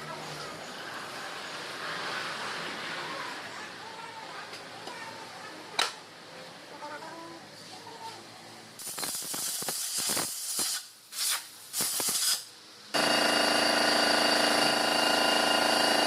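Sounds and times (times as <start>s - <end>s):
hissing bursts: 8.8s - 13.2s
machine hum with high whine: 12.9s - 16.0s.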